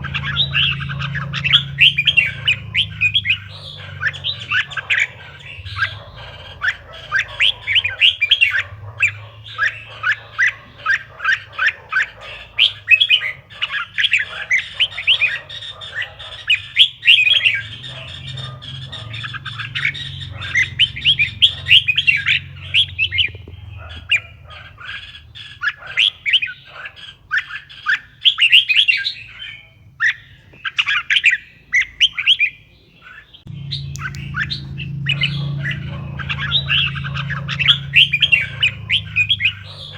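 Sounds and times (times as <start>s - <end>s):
steady low hum: 0.0s - 10.1s, 33.5s - 39.9s
bird chirping: 0.0s - 39.9s.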